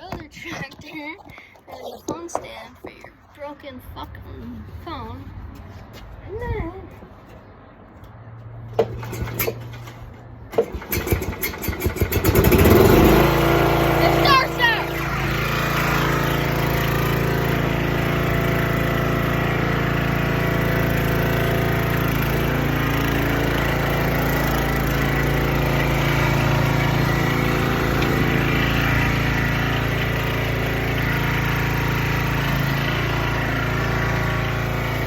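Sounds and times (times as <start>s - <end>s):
riding mower engine running: 8.6s - 35.0s.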